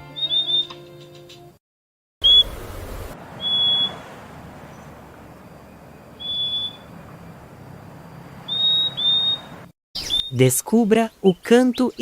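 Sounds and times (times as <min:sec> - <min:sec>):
bird whistling high notes: 0:00.1 - 0:00.8, 0:02.2 - 0:02.6, 0:03.4 - 0:04.0, 0:06.2 - 0:06.9, 0:08.5 - 0:10.4.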